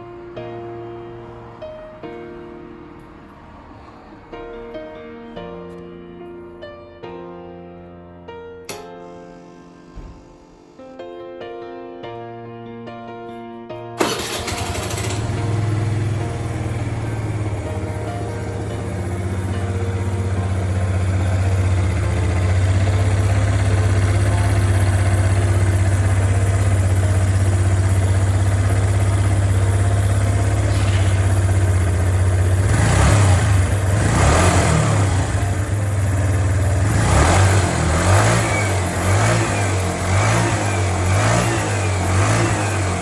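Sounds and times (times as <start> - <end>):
moped engine idling and revving: 14.0 - 43.0.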